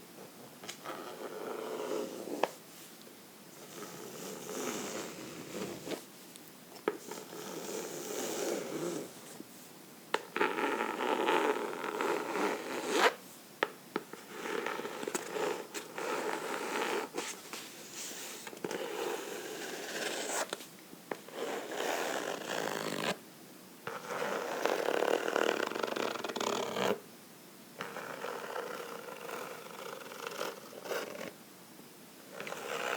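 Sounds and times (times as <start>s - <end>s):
fingernails scratching a book: 0.8s - 2.5s, 3.6s - 6.0s, 6.9s - 9.1s, 10.3s - 13.2s, 14.1s - 23.2s, 23.9s - 27.0s, 27.8s - 31.3s, 32.3s - 32.9s.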